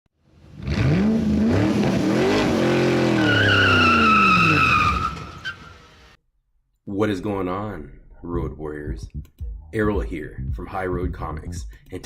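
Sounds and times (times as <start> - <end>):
car engine revving: 0.4 - 6.2
tyre squeal: 3.1 - 5.8.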